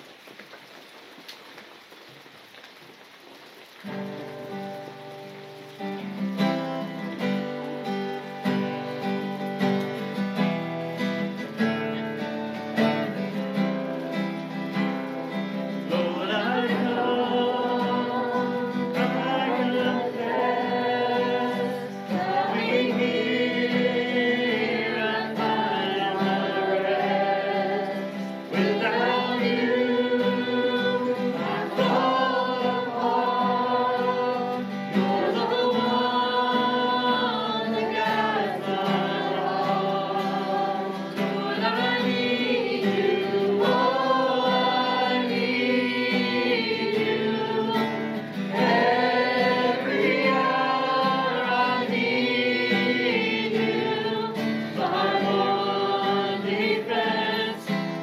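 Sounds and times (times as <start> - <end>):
group singing worship song: 13.1 - 58.0.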